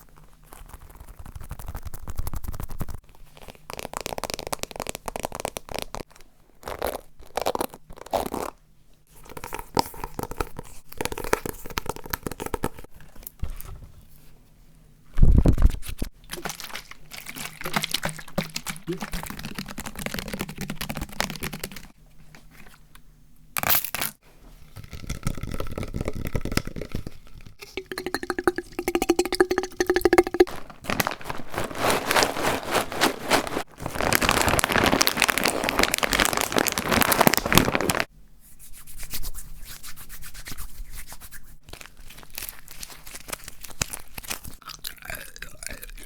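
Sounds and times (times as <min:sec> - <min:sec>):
rustling noise: 0:30.5 - 0:44.6.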